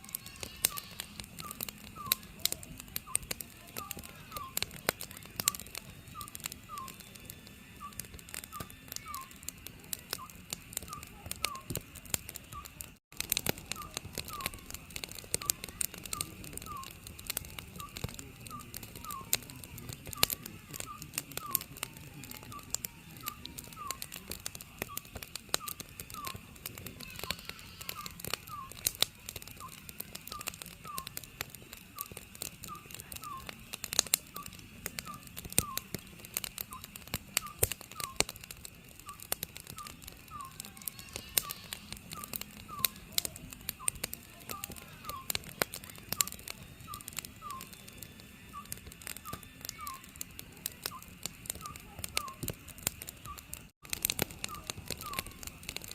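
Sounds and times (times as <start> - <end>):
wood fire crackling and popping: 0.0 - 55.9
owl hooting: 0.1 - 4.7, 39.8 - 43.0.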